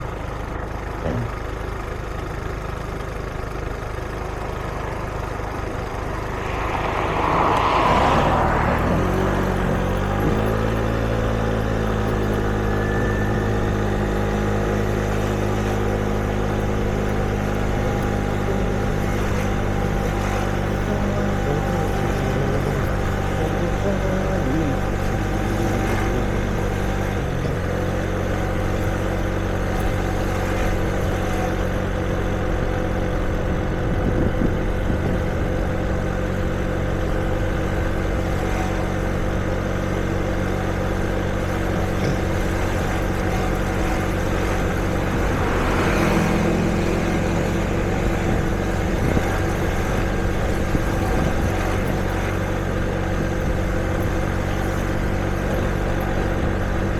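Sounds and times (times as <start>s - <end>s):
vehicle engines idling: 0.0s - 56.9s
vehicle passing: 4.7s - 27.7s, 41.7s - 51.9s.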